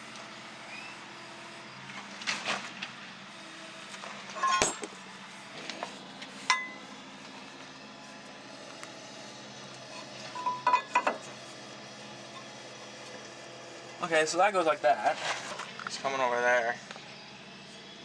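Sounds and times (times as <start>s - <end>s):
metal tools clinking and knocking: 4.4s - 5.0s, 10.3s - 11.2s.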